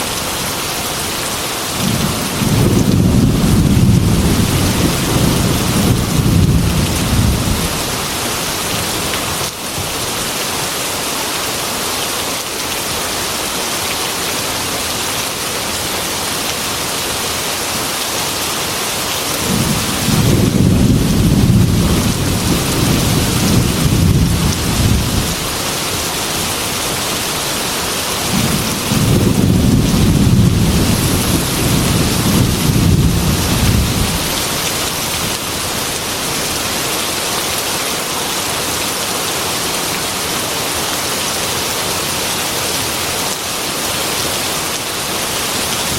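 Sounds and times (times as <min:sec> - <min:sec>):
heavy rain on a metal roof: 0:00.0 - 0:45.9
thunder rumbling: 0:01.8 - 0:08.2, 0:19.4 - 0:26.9, 0:28.2 - 0:35.4.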